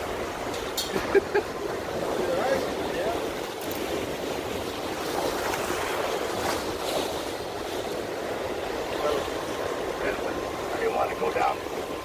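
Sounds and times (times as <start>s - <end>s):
water lapping against rocks: 0.0s - 12.0s
wind: 0.0s - 12.0s.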